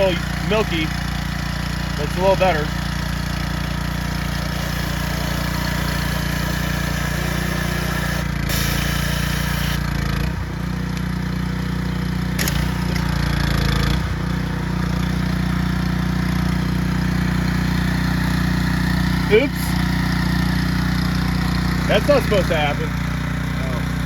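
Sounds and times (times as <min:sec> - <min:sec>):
pressure washer motor running: 0:00.0 - 0:24.0
water spray hiss: 0:04.4 - 0:09.8
sharp click: 0:12.4 - 0:13.1.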